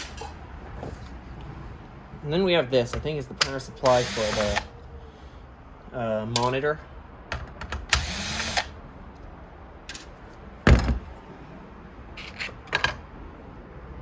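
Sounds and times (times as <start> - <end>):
power drill spinning: 3.8 - 4.7, 8.0 - 8.7
sharp clicks of parts handled: 6.3 - 6.6, 9.9 - 10.2.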